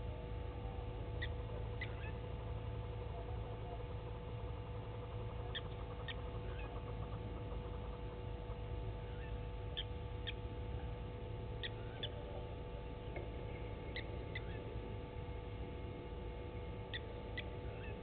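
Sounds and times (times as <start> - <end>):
steady low hum: 0.0 - 18.0
short high bird calls: 1.2 - 2.2, 13.8 - 14.8.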